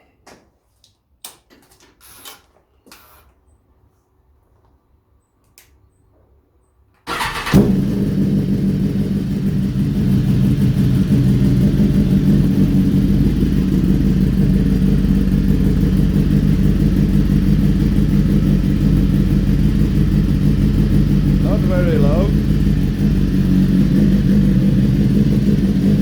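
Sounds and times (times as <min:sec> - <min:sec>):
motorcycle engine starting and idling: 0:07.0 - 0:26.0.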